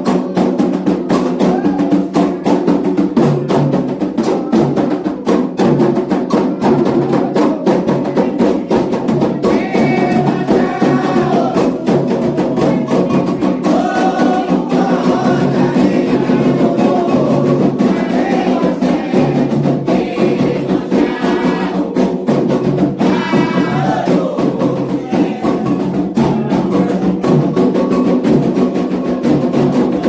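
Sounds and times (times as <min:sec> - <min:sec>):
hand drums drumming: 0:00.0 - 0:30.0
voices singing: 0:06.0 - 0:30.0.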